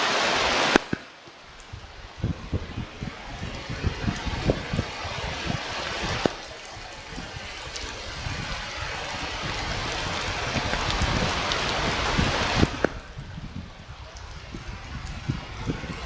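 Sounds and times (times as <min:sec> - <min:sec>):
weather hiss on microphone: 0:00.0 - 0:16.0
low rumbling: 0:00.4 - 0:16.0.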